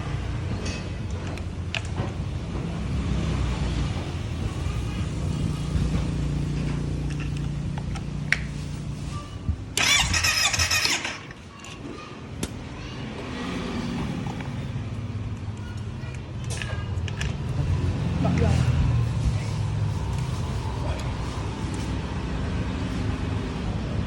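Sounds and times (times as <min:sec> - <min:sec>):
engine cranking on starter: 0:09.8 - 0:12.0.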